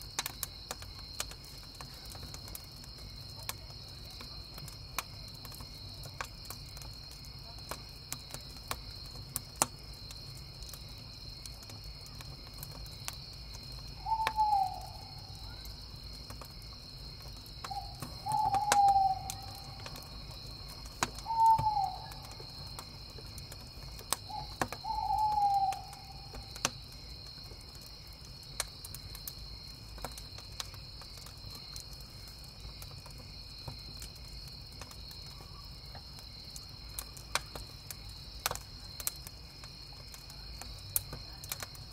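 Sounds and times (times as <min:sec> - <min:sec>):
campfire crackling: 0:00.0 - 0:41.9
crickets chirping: 0:00.0 - 0:41.9
owl hooting: 0:14.0 - 0:15.3, 0:17.7 - 0:19.8, 0:21.2 - 0:22.3, 0:24.3 - 0:26.4.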